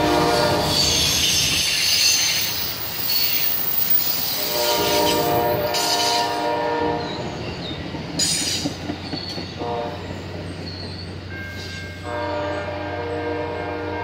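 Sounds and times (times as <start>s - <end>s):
locomotive air horn: 0.0s - 1.4s, 4.4s - 7.2s, 9.6s - 10.1s, 12.0s - 14.0s
train wheels rumbling on rails: 0.0s - 14.0s.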